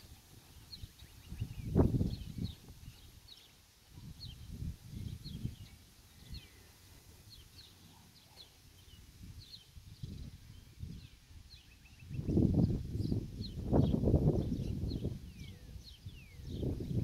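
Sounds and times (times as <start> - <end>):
low rumbling microphone noise: 0.0 - 3.1, 8.8 - 17.0
small birds chirping: 0.0 - 17.0.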